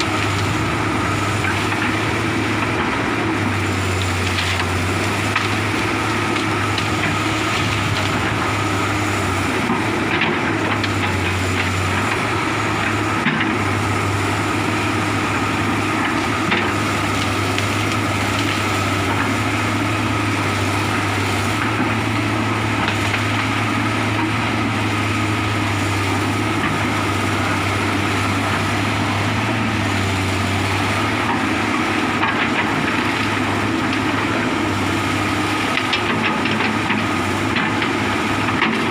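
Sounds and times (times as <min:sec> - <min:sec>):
excavator diesel engine running: 0:00.0 - 0:38.9
sharp knocks and cracks: 0:35.6 - 0:38.9.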